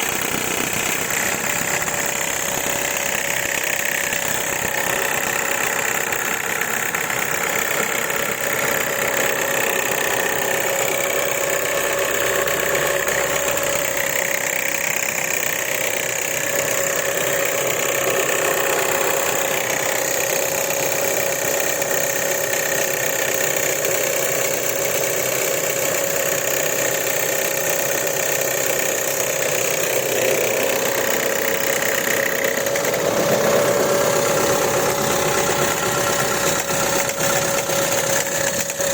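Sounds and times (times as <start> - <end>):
car engine idling: 0.0 - 38.9
engine knock: 0.0 - 38.9.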